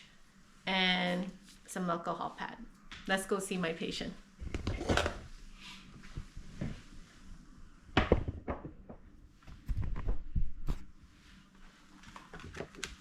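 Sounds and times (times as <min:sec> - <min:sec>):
knocks in a room: 0:08.0 - 0:09.0.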